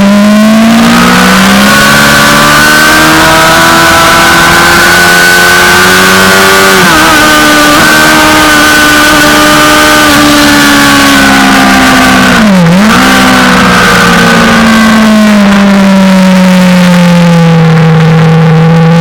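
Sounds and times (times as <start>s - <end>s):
motorcycle engine at high revs: 0.0s - 19.0s.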